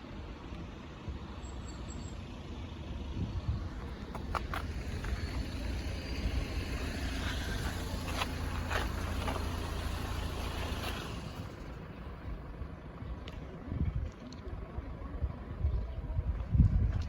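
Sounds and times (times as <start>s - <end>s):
train rumbling: 3.0s - 12.0s.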